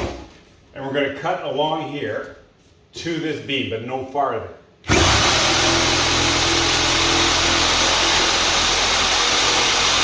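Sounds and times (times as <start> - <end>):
power saw cutting plaster: 4.9 - 10.0.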